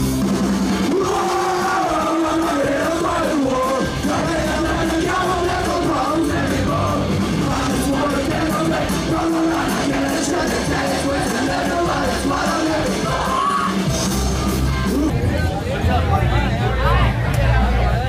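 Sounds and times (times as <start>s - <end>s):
punk rock band playing live: 0.0s - 18.0s
singer yelling: 0.8s - 14.0s.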